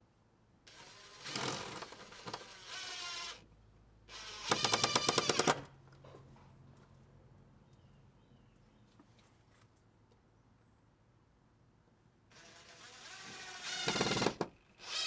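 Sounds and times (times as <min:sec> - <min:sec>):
power tool hammering rattle: 0:00.7 - 0:03.4, 0:04.2 - 0:05.7, 0:12.4 - 0:15.0.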